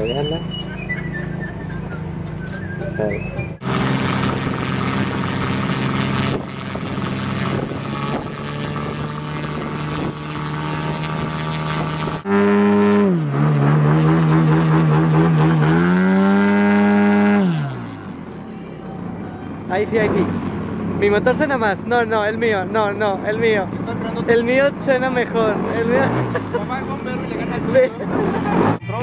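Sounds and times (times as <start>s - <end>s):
model airplane engine: 3.6s - 18.4s.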